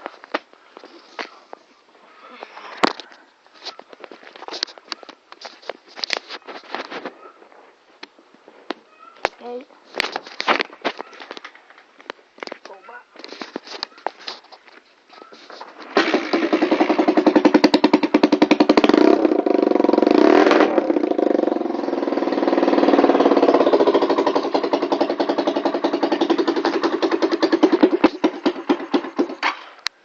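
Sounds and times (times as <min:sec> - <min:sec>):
dirt bike engine running: 0:15.8 - 0:29.4.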